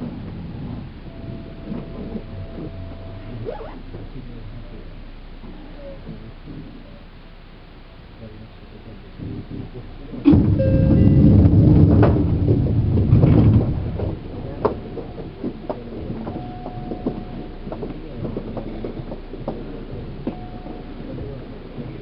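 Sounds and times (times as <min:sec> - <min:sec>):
heavy low train rumble: 0:00.0 - 0:22.0
train rolling noise: 0:00.0 - 0:22.0
brief steady tone: 0:01.1 - 0:03.5, 0:10.3 - 0:11.3, 0:16.2 - 0:17.6, 0:20.3 - 0:21.4.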